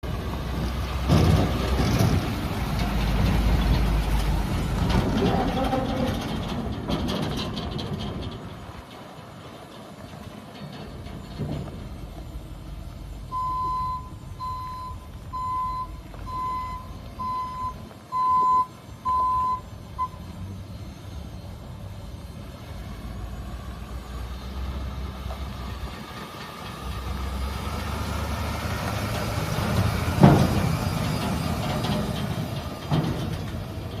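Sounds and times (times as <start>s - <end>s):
diesel engine running: 0.0s - 34.0s
truck backup alarm beeping: 8.4s - 26.1s, 26.7s - 34.0s.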